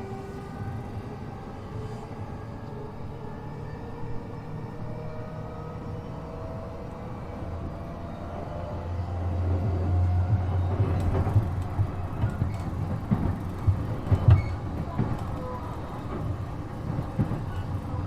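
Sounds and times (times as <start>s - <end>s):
train rumble: 0.0s - 18.0s
wheels knocking over rail joints: 10.3s - 17.8s.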